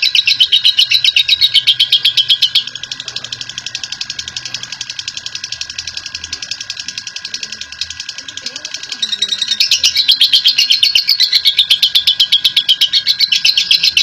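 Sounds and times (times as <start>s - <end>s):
bird chattering trill: 0.0s - 14.0s.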